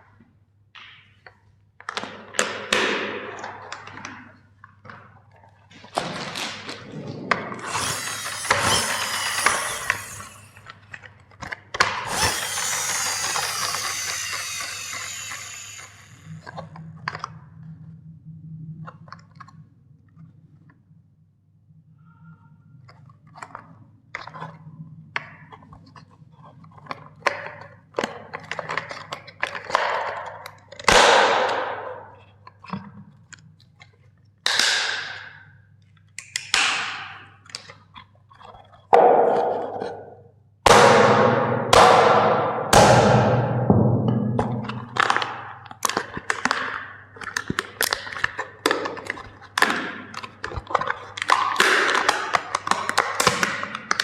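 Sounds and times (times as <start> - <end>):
plastic toys cracking and crunching: 7.6 - 17.3, 26.7 - 31.6, 44.7 - 54.0.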